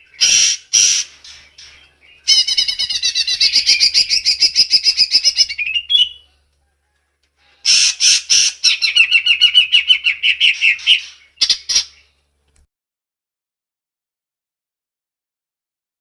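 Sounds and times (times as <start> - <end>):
songbird singing trills: 0.0 - 6.4, 7.8 - 12.2.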